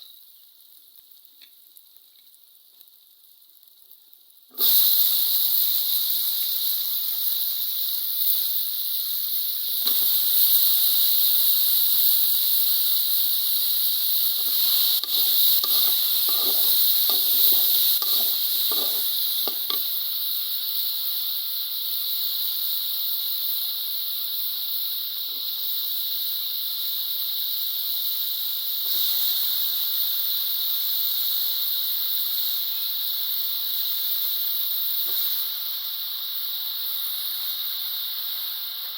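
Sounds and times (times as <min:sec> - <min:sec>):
food sizzling in a pan: 0:00.0 - 0:38.9
short irregular strokes: 0:14.4 - 0:19.8.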